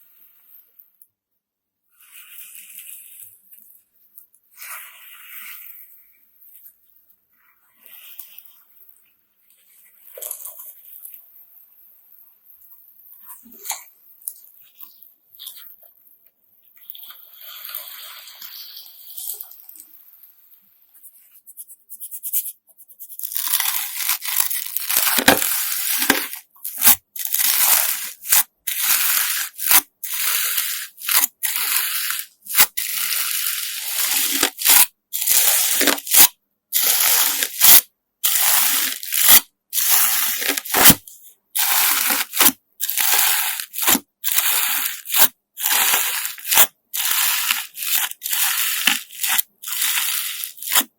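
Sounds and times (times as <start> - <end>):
gritty slime squishing: 23.0 - 50.9.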